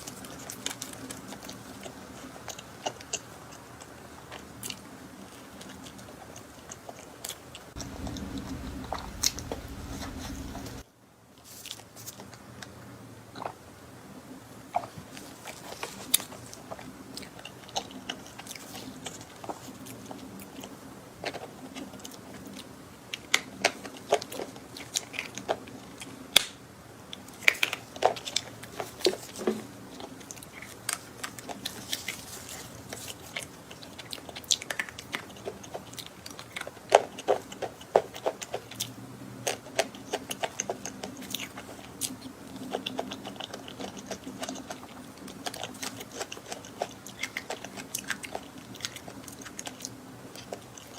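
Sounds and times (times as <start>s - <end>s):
person biting and chewing: 27.2s - 50.9s.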